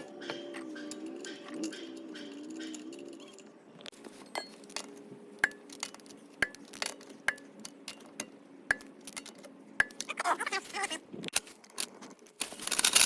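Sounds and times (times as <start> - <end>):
wrench and lug nuts clinking: 0.0 - 3.6.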